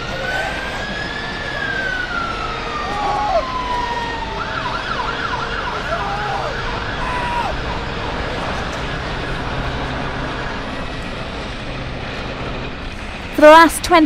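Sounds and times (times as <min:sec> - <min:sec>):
siren wailing and yelping: 0:00.0 - 0:08.0
low traffic rumble: 0:00.0 - 0:14.0.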